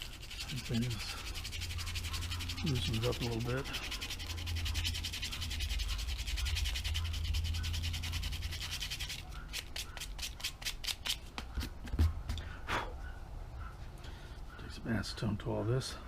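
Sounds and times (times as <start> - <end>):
hand sanding plastic: 0.0 - 11.9.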